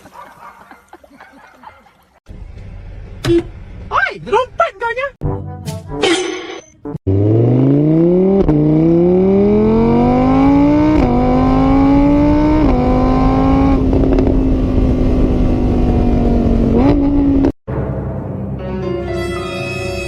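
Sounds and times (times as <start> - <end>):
engine accelerating through gears: 7.0 - 17.6.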